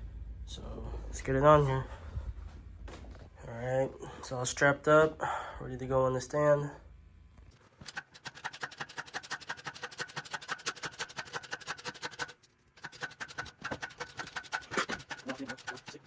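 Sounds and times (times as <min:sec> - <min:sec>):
fast ratchet clicking: 0:07.8 - 0:16.0.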